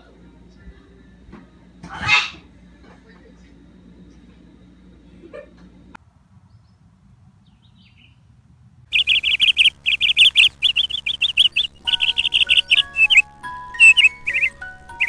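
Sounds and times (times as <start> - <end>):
bird chirping in rapid trills: 8.9 - 15.0.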